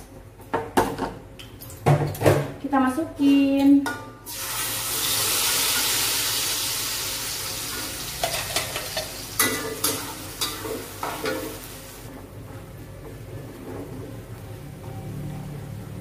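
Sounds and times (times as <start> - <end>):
paste sizzling in hot oil: 4.3 - 12.1.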